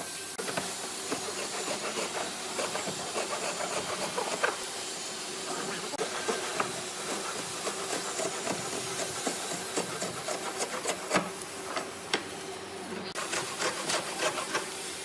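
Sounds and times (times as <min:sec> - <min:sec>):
steady hiss: 0:00.0 - 0:15.0
scraping on wood: 0:01.1 - 0:04.6, 0:06.0 - 0:11.9, 0:13.2 - 0:14.7.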